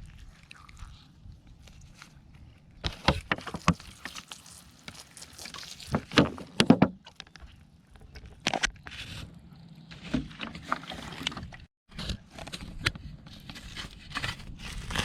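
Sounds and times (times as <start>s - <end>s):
water splashing and sloshing: 0.0s - 2.2s, 3.3s - 8.4s, 9.8s - 11.7s.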